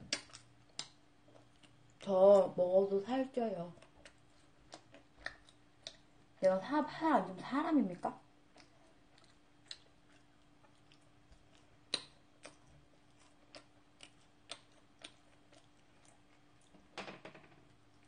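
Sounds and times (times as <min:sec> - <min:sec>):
person chewing food: 0:00.0 - 0:02.5, 0:03.7 - 0:06.4, 0:08.3 - 0:17.0
faint steady hum: 0:00.0 - 0:18.0.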